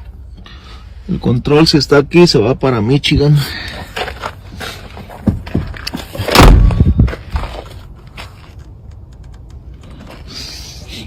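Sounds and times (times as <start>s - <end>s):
heavy thump and rattle: 5.1s - 7.7s
knocks and clunks on car body: 5.2s - 7.6s.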